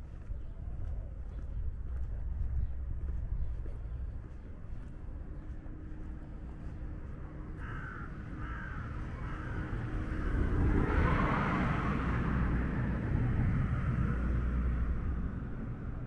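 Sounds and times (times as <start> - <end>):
street rumble: 0.0 - 16.0
passing motor vehicle: 6.9 - 16.0.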